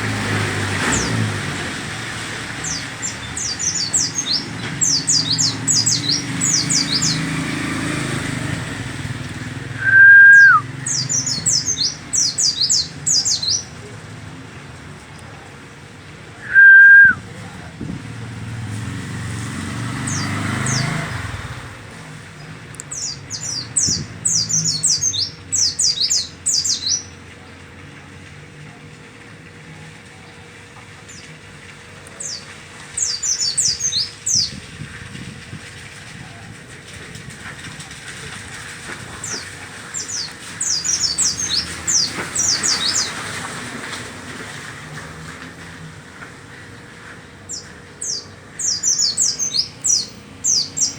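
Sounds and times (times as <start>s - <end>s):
songbird chirping: 2.2s - 14.2s, 16.4s - 17.2s, 19.6s - 21.6s, 22.3s - 27.6s, 32.0s - 34.6s, 39.1s - 43.4s, 47.4s - 50.9s
loud steady whistle-like tone: 9.8s - 10.7s, 16.4s - 17.2s.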